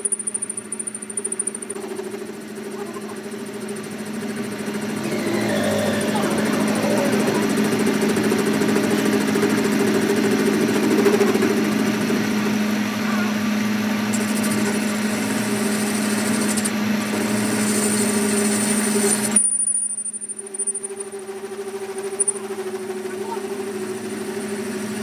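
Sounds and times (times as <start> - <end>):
workshop machine humming: 1.6 - 18.5.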